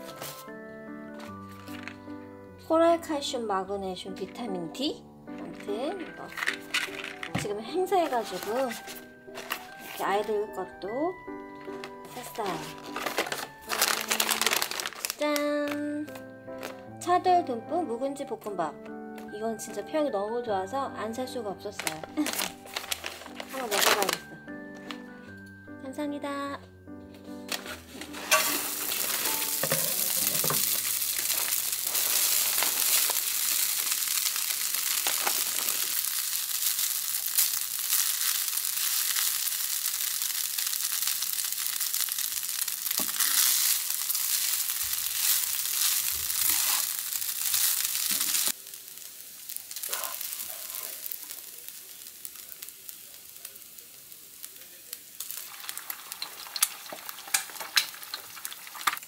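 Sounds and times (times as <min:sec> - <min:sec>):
eggs frying: 0:05.7 - 0:10.4, 0:11.6 - 0:15.5, 0:22.1 - 0:24.0, 0:28.0 - 0:59.0
fried rice sizzling in a pan: 0:07.8 - 0:10.5, 0:11.6 - 0:15.3, 0:21.8 - 0:24.2, 0:27.6 - 0:59.0.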